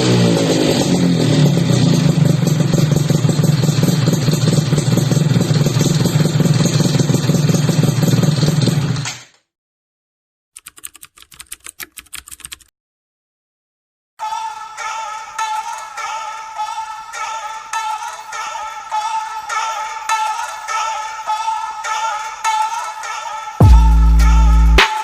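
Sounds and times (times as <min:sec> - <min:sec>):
two-stroke engine revving: 0:00.0 - 0:09.1.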